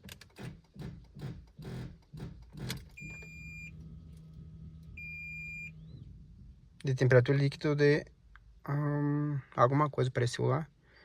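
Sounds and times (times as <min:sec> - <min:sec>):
high dashboard warning beeps: 0:03.0 - 0:03.9, 0:04.9 - 0:06.1.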